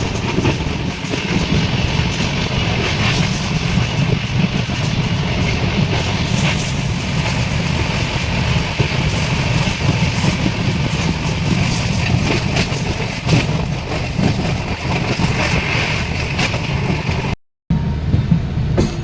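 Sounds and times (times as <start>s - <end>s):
train rumble with hiss: 0.0s - 19.0s.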